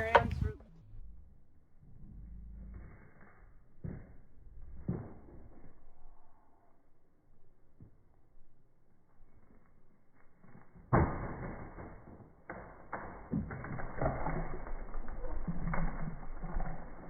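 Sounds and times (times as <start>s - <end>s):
loud wooden thud: 0.0s - 0.5s
wood cracking and creaking: 0.0s - 0.6s, 10.4s - 17.0s.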